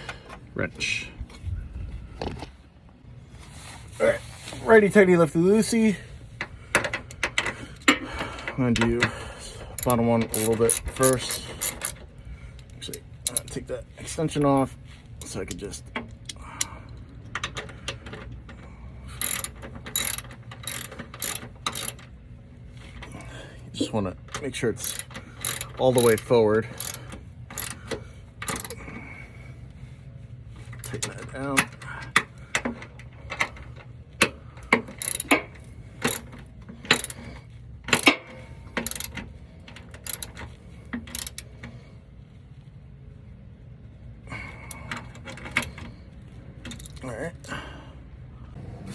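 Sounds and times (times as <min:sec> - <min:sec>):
ratchet wrench clicking: 0:09.7 - 0:13.6, 0:19.2 - 0:22.2, 0:24.7 - 0:28.8, 0:34.6 - 0:37.3, 0:37.9 - 0:41.6.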